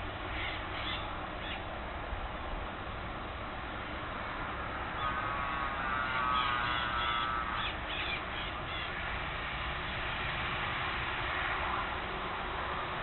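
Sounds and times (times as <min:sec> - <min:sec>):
steady background hiss: 0:00.0 - 0:13.0
harsh bird call: 0:05.0 - 0:08.9.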